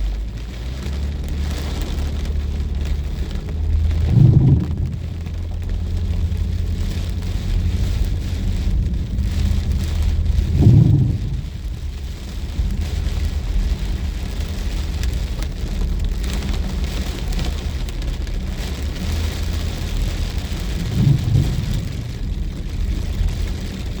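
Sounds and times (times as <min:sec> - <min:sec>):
deep rumble: 0:00.0 - 0:24.0
heavy rain hissing: 0:00.0 - 0:24.0.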